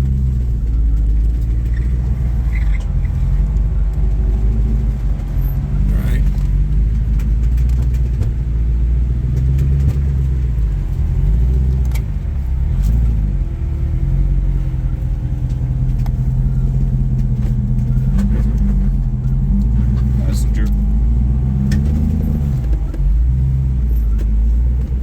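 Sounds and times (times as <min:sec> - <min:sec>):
engine running at low revs: 0:00.0 - 0:25.0
sharp clicks and knocks: 0:00.6 - 0:08.6.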